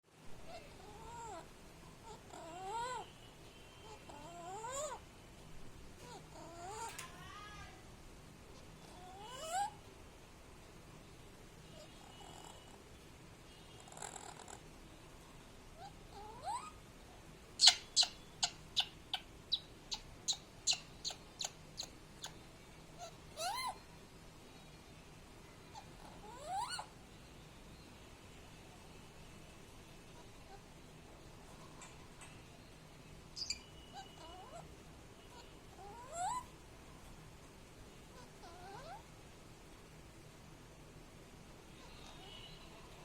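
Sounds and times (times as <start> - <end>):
parrot calling: 0.4 - 3.2, 3.8 - 5.0, 6.0 - 7.1, 8.6 - 9.8, 15.8 - 16.8, 17.6 - 22.4, 23.0 - 23.9, 25.7 - 27.0, 33.3 - 34.7, 35.3 - 36.6, 38.1 - 39.1, 41.8 - 42.9.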